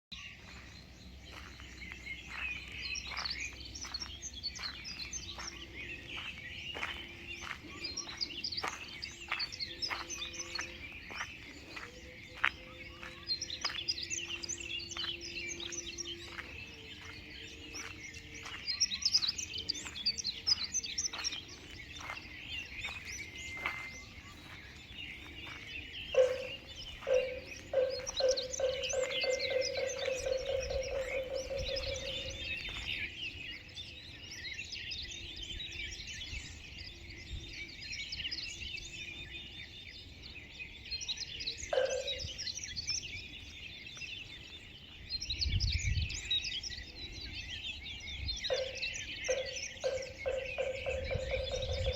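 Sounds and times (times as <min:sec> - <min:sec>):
birds chirping and singing: 0:00.1 - 0:51.9
low repeated tone: 0:25.5 - 0:32.9, 0:48.5 - 0:51.9.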